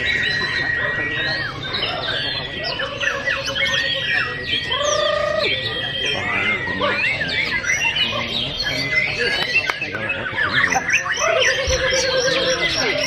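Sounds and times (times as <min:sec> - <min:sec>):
birds singing whistles and trills: 0:00.0 - 0:13.0.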